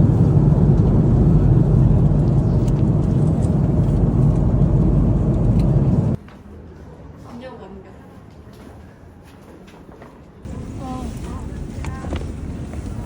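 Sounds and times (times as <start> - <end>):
airliner cabin engine roar: 0.0 - 6.2, 10.5 - 13.0.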